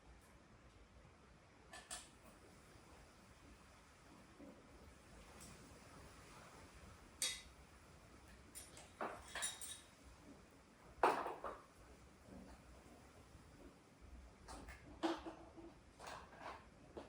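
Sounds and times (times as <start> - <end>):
metal tools clinking: 8.6 - 9.9.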